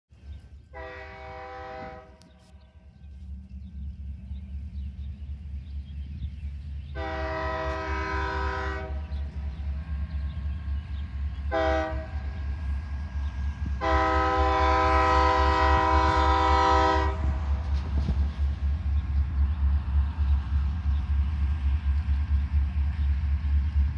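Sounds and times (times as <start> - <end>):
diesel locomotive rumble: 0.1 - 23.9
locomotive air horn blasts: 0.7 - 2.4, 7.0 - 9.1, 11.5 - 12.3, 13.8 - 17.5.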